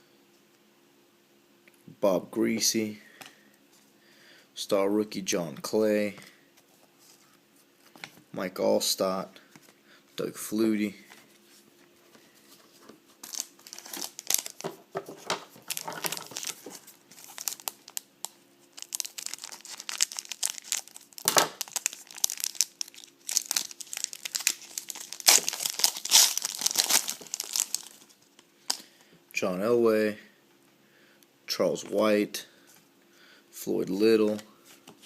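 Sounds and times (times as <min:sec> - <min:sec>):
wrappers tearing and crinkling: 0:13.2 - 0:14.8, 0:15.5 - 0:28.8.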